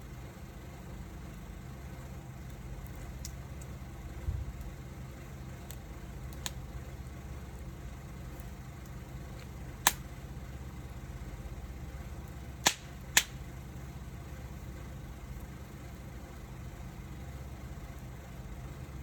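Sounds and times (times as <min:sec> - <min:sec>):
wood fire crackling: 0:00.0 - 0:19.0
sharp pops: 0:12.6 - 0:13.4.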